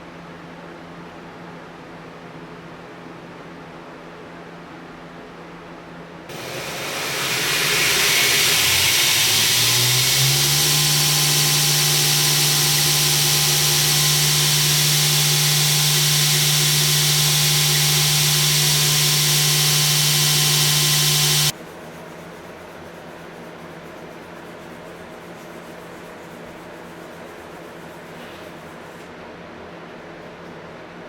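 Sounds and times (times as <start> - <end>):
power tool motor whirring: 6.3 - 21.5.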